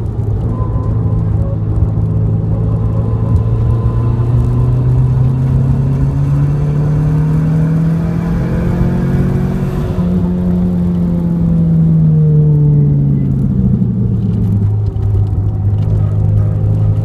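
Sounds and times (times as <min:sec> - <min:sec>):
car engine braking and downshifting: 0:00.0 - 0:17.0.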